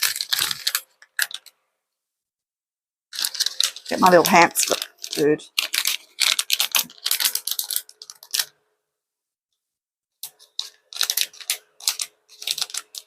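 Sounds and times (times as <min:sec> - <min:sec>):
plastic packaging crinkling: 0:00.0 - 0:01.6, 0:03.1 - 0:08.6, 0:10.2 - 0:13.0.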